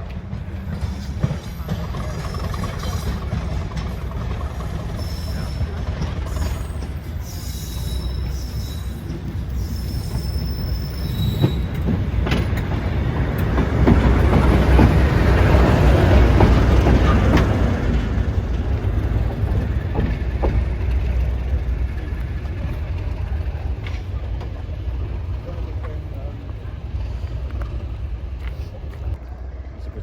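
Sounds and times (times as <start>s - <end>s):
train rumbling past: 0.0s - 30.0s
wheels clicking over track: 11.1s - 26.2s.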